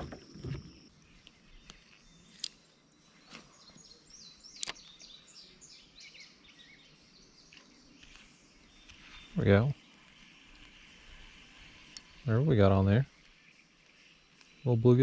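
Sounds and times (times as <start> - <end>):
bird chirping: 0.0 - 15.0
faint outdoor background: 0.0 - 15.0
sharp clicks: 4.5 - 5.0.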